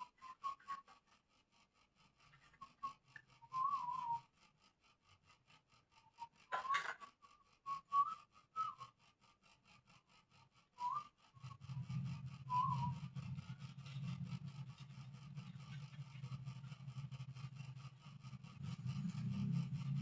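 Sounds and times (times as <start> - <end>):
low steady hum: 10.8 - 20.0
short whistled notes: 12.5 - 13.1.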